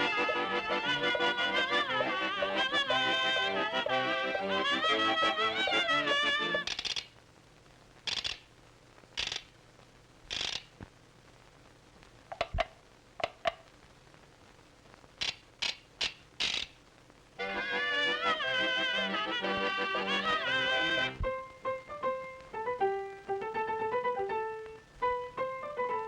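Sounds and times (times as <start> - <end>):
music: 0.0 - 6.8, 17.4 - 26.0
faint film soundtrack hiss: 0.0 - 26.0.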